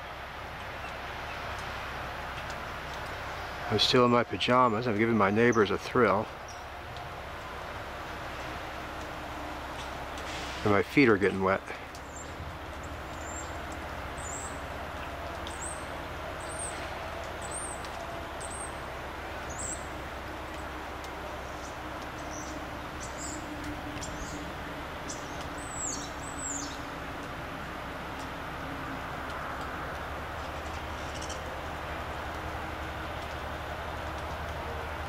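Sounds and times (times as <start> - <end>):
small bird chirps: 25.1 - 26.8.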